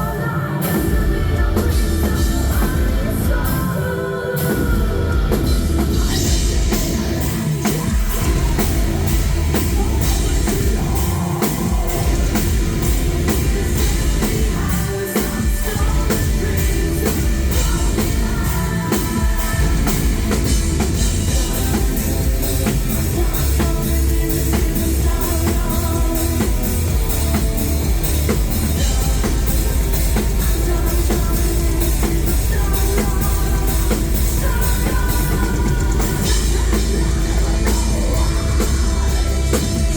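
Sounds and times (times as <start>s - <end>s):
metal band playing live: 0.0s - 39.9s
person singing: 0.0s - 39.9s
fast kick-drum strokes: 4.6s - 39.9s.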